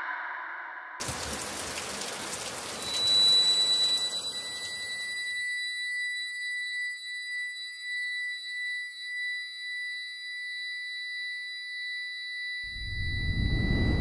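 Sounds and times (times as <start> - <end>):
high-pitched ringing tone: 2.8 - 14.0.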